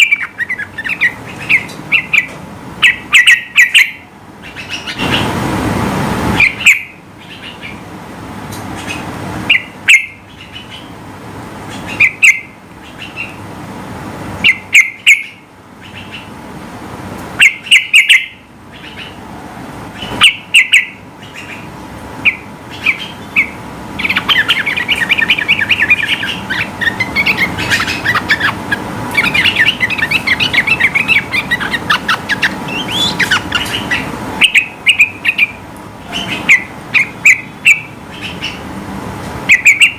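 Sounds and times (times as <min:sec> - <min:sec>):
bird rapid chattering: 0:00.0 - 0:05.3, 0:06.4 - 0:07.8, 0:08.6 - 0:11.0, 0:11.6 - 0:13.4, 0:14.4 - 0:16.4, 0:17.4 - 0:19.2, 0:20.0 - 0:38.7, 0:39.5 - 0:39.9.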